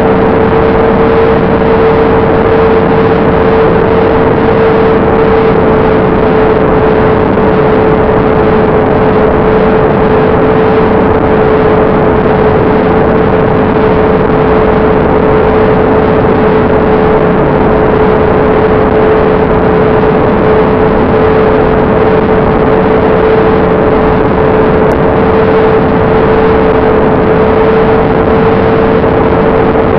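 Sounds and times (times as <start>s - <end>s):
propeller motor whine: 0.0s - 29.9s
rush of air: 0.0s - 29.9s.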